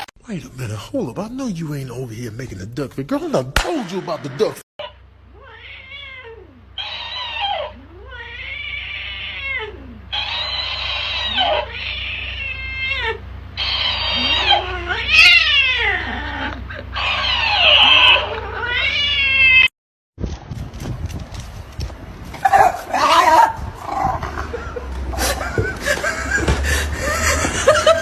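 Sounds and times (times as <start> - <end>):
cat yowling: 4.8 - 19.7, 22.4 - 24.3.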